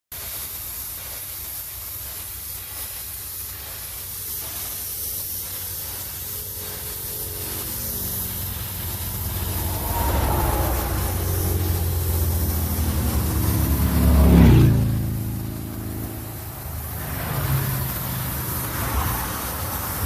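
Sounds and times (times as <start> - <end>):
steady hiss: 0.1 - 20.0
truck diesel engine revving: 6.2 - 20.0.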